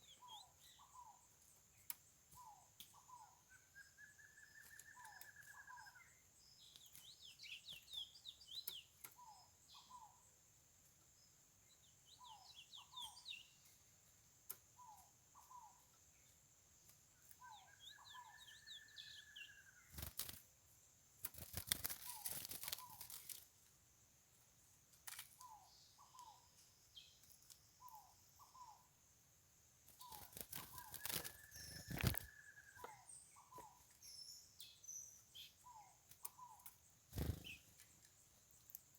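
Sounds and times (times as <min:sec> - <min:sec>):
finch singing whistles and trills: 0:00.0 - 0:10.2, 0:11.8 - 0:13.7, 0:17.2 - 0:20.1, 0:30.0 - 0:37.8.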